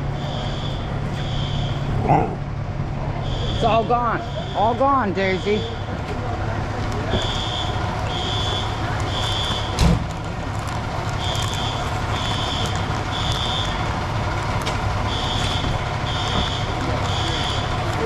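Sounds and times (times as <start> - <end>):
fire alarm beeping: 0.0 - 1.9, 3.2 - 5.9, 7.1 - 9.8, 11.2 - 13.9, 15.0 - 17.9
low engine rumble: 0.0 - 18.0.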